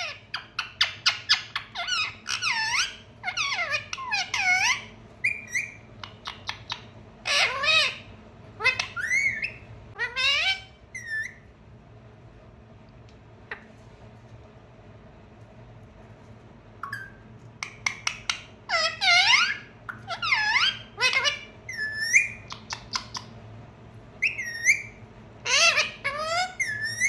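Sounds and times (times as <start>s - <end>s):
parrot squawking: 0.0s - 11.4s, 16.8s - 23.4s, 24.2s - 27.0s
parrot chirping: 0.0s - 11.5s, 16.8s - 23.4s, 24.2s - 27.0s.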